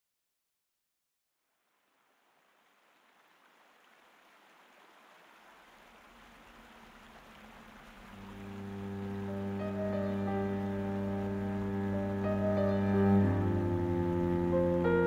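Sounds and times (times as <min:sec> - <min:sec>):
low sustained music notes: 0:07.2 - 0:15.0.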